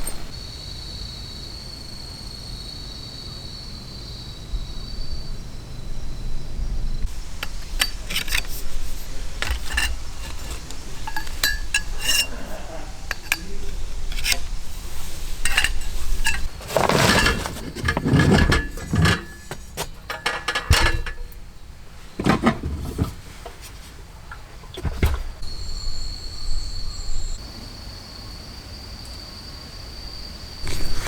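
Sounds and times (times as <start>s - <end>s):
insects chirring: 0.0s - 31.0s
cookware knocking and clinking: 7.1s - 21.5s.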